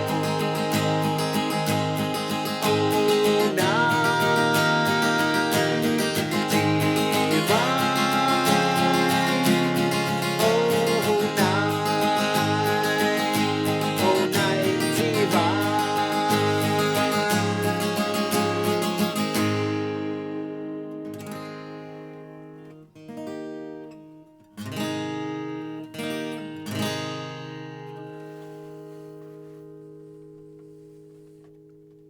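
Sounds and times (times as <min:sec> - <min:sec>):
sliding melody with held notes: 0:00.0 - 0:22.8
acoustic guitar strummed: 0:00.0 - 0:32.0.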